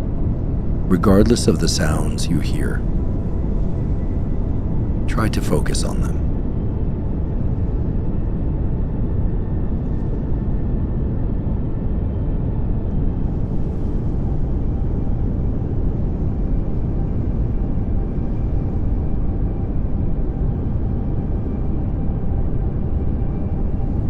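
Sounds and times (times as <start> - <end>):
pink noise hiss: 0.9 - 2.8.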